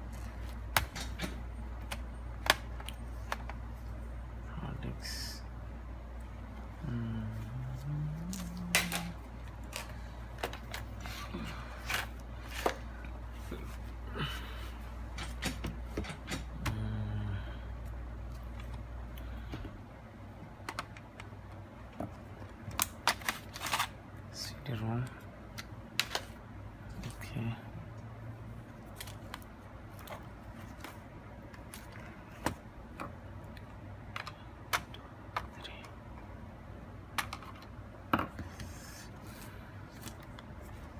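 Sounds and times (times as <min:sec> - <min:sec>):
laptop parts clicking and knocking: 0:15.1 - 0:16.7.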